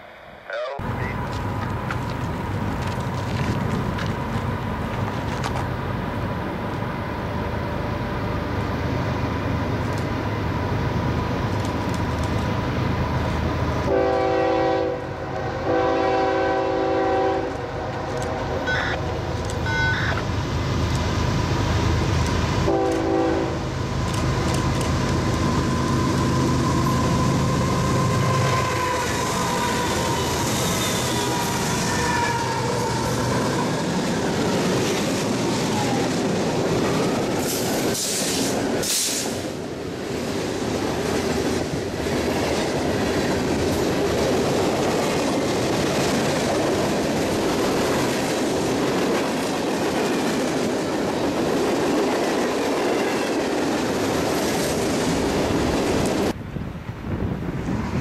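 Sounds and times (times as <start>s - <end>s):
locomotive engines rumbling: 0.0s - 58.0s
locomotive air horn blasts: 13.9s - 19.0s, 22.7s - 23.6s, 27.5s - 32.6s.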